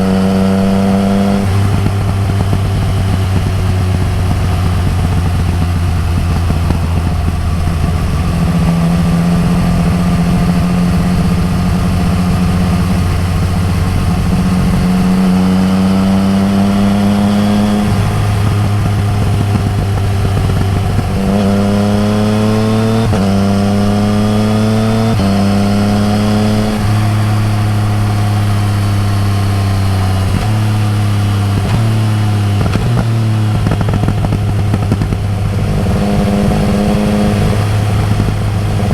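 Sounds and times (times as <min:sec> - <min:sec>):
motorcycle engine upshifting: 0:00.0 - 0:38.9.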